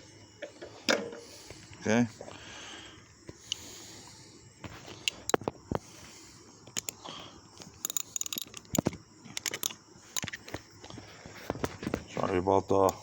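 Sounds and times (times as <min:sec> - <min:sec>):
hand tools clicking and knocking: 0:06.7 - 0:07.0, 0:07.6 - 0:10.6.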